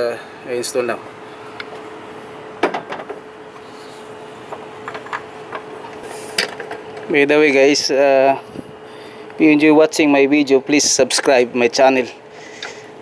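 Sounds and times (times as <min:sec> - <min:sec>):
faint hum: 0:00.0 - 0:13.0
tools and car parts clicking: 0:04.5 - 0:07.1.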